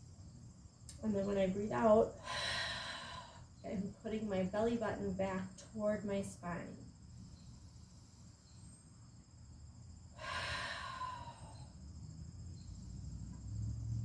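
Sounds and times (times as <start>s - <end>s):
insects chirping: 0.0s - 14.0s
woman exhaling slowly: 2.2s - 3.6s, 10.2s - 11.8s.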